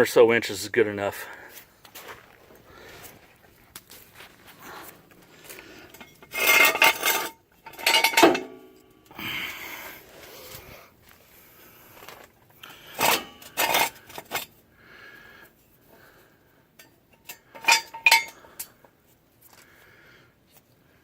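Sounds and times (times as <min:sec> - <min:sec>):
metal jack stand clanking: 0:05.9 - 0:08.7, 0:12.9 - 0:14.5, 0:16.8 - 0:18.7.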